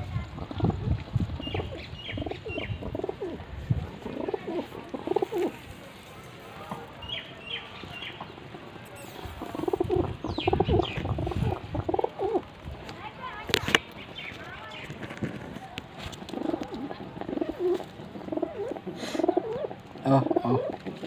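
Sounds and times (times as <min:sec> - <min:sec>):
pigeons cooing: 0:00.4 - 0:05.6, 0:09.2 - 0:12.6, 0:16.1 - 0:21.0
birds chirping: 0:00.6 - 0:21.0.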